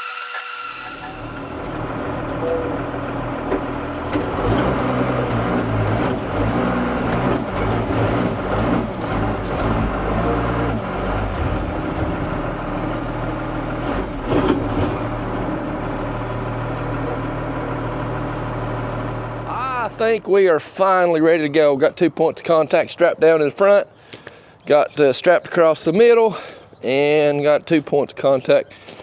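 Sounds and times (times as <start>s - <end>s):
diesel truck engine running: 0.0s - 20.6s.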